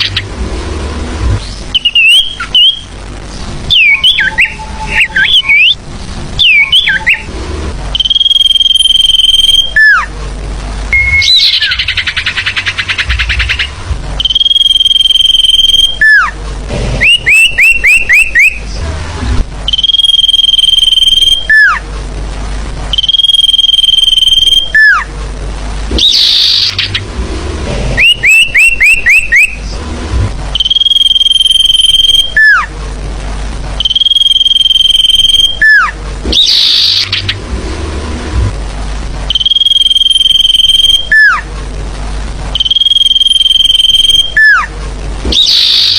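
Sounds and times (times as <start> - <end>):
held whistle with falling note: 30.6 - 32.7, 39.3 - 41.4
buzzy rattle call: 33.8 - 37.4.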